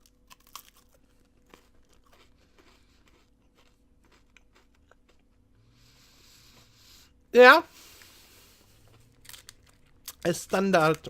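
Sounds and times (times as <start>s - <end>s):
wafer crunching being chewed: 0.0s - 5.4s, 8.6s - 11.0s.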